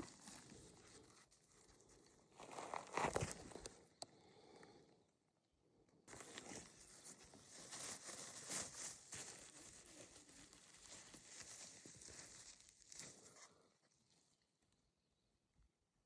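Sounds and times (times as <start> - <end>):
dry leaf litter crunching: 6.1 - 13.4.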